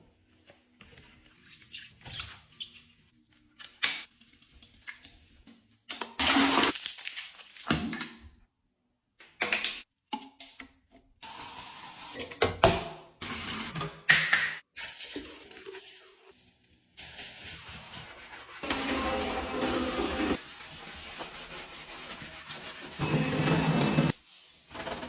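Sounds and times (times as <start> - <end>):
packaging rustling: 6.7 - 7.7.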